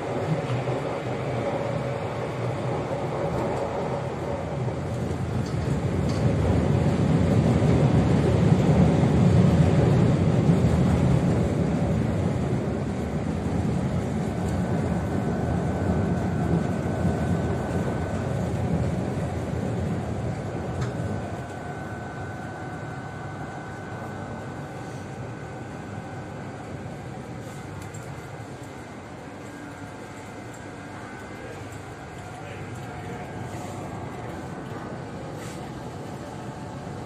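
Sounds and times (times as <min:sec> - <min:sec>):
train interior rumble: 0:00.0 - 0:37.0
faint high whine: 0:14.0 - 0:37.0.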